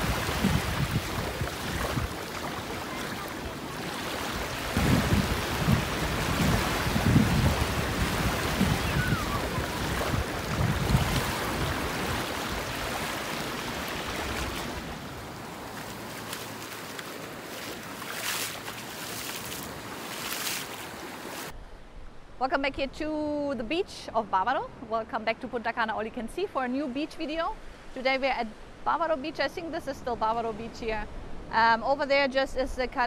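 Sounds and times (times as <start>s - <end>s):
wind buffeting microphone: 0.0s - 15.5s
surf washing onto beach: 0.0s - 21.5s.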